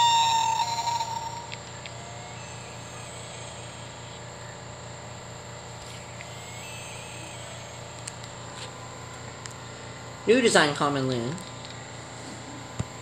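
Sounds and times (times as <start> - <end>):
faint high tone: 0.0 - 4.7, 6.3 - 8.2
steady low hum: 0.0 - 13.0.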